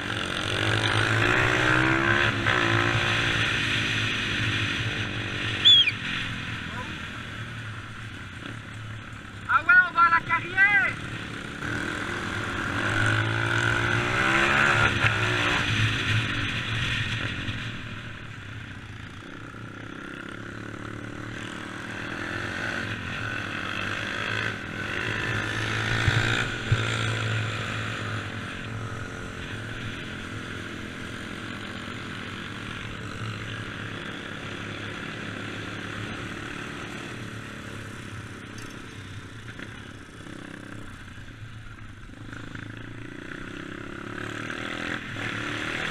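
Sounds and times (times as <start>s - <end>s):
dirt bike engine revving: 0.0s - 7.2s, 9.6s - 17.6s, 19.6s - 29.6s, 42.3s - 45.9s.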